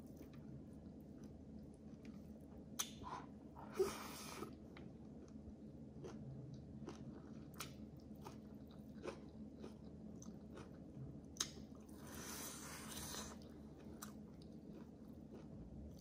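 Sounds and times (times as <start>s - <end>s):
person chewing food: 4.2s - 16.0s.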